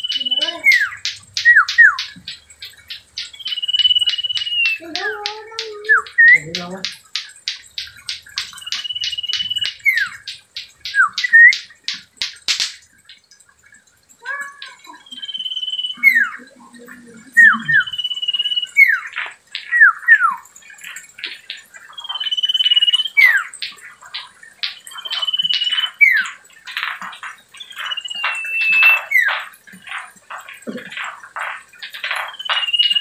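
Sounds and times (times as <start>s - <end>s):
bird sharp ticking notes: 0.0s - 13.4s, 14.2s - 33.0s
bird whistles: 3.4s - 4.8s, 8.6s - 10.2s, 10.9s - 11.6s, 15.0s - 16.4s, 17.4s - 19.1s, 19.7s - 20.4s, 27.7s - 29.4s, 32.2s - 33.0s.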